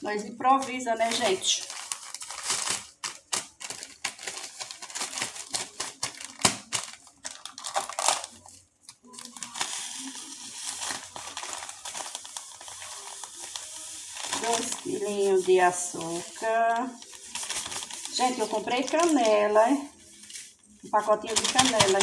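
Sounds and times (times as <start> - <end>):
plastic bag crinkling and rustling: 0.0 - 22.0
sugar pouring hiss: 9.2 - 22.0.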